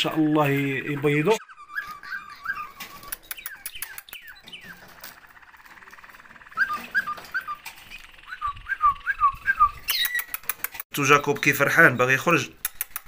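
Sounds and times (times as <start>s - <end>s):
birds chirping: 0.0s - 13.0s
fast buzzy bird trill: 0.0s - 13.0s
sharp clicks: 2.7s - 10.9s, 12.5s - 13.0s.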